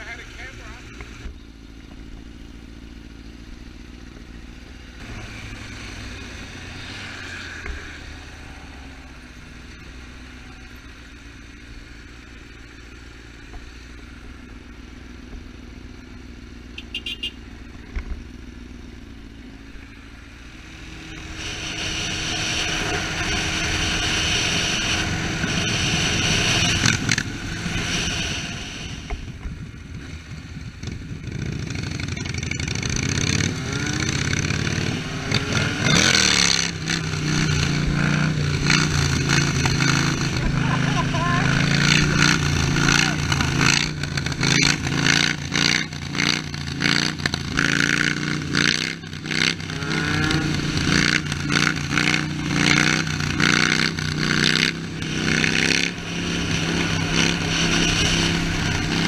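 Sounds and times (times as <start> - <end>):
motorcycle engine running: 0.0 - 59.0
rushing noise: 19.8 - 30.4, 33.0 - 59.0.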